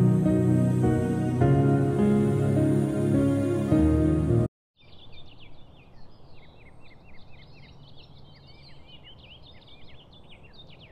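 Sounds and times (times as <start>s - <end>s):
soft ambient music: 0.0s - 4.5s
birds chirping: 4.8s - 10.9s.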